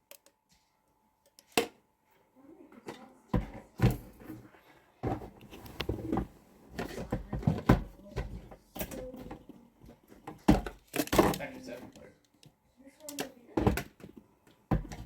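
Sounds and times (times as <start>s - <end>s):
hard objects knocking and clattering: 2.9s - 12.0s, 13.5s - 15.0s.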